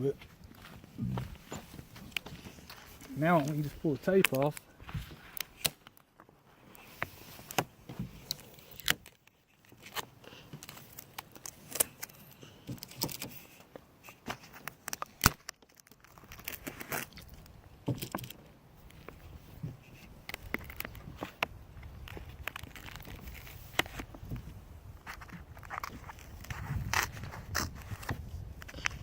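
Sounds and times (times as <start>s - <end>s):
tape peeling with crackles: 1.0s - 29.0s.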